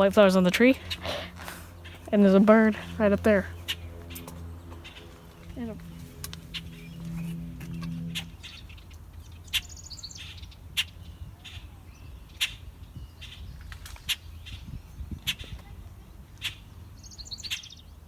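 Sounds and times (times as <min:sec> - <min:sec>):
low rumble: 0:00.0 - 0:09.5
low hum: 0:00.0 - 0:11.4
birds chirping: 0:00.0 - 0:18.0.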